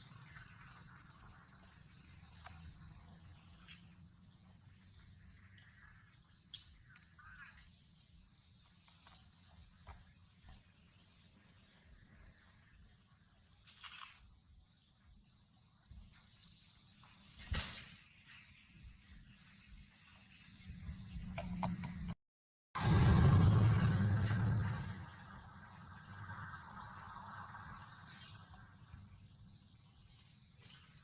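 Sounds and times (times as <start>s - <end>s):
rustles: 13.5s - 14.4s
low rumble: 22.8s - 26.7s
high-pitched insect drone: 22.8s - 31.0s.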